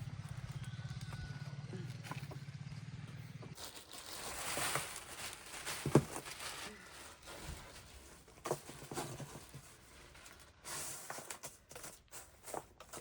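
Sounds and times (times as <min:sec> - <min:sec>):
rustle of handled material: 0:03.6 - 0:13.0.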